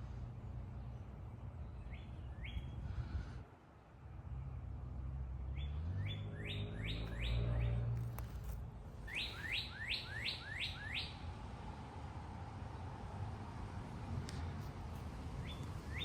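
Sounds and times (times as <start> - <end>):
songbird whistling: 9.1 - 11.2.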